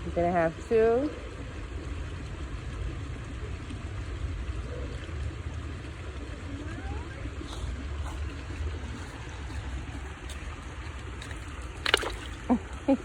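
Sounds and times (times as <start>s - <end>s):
creek water running: 0.0s - 13.0s.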